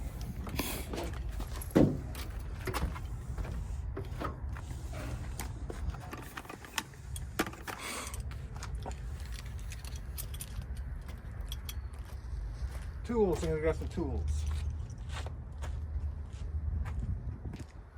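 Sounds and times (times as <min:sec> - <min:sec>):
low steady rumble: 0:00.0 - 0:07.4
small metal parts clicking and rattling: 0:06.0 - 0:11.9.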